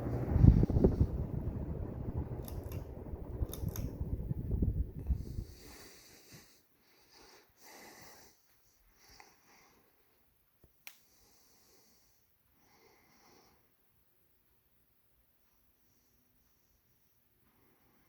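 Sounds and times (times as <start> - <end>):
ceiling fan rumbling: 0.0 - 10.1.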